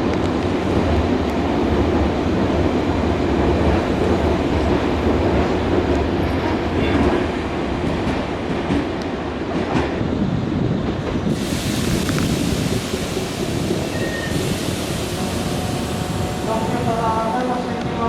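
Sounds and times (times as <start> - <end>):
train wheels on rails: 0.0 - 18.0.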